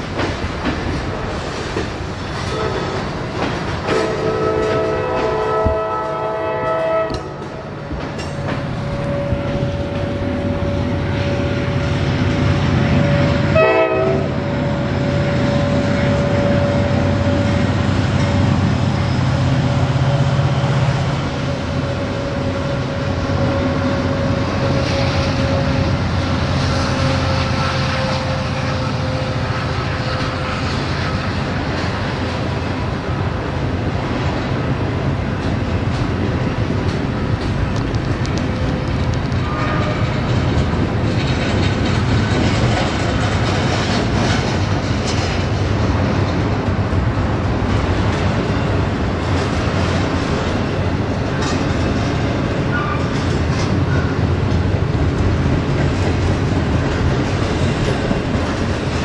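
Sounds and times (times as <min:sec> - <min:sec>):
freight cars rumbling on rails: 0:00.0 - 0:59.0
locomotive air horn: 0:02.5 - 0:03.1, 0:03.9 - 0:07.8, 0:08.7 - 0:17.8, 0:21.4 - 0:31.6, 0:39.4 - 0:40.3, 0:52.7 - 0:53.2.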